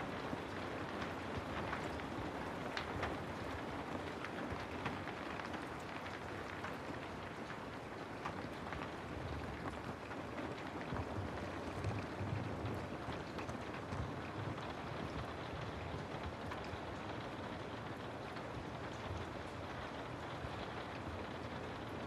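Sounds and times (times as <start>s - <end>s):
rain falling on a surface: 0.0s - 22.0s.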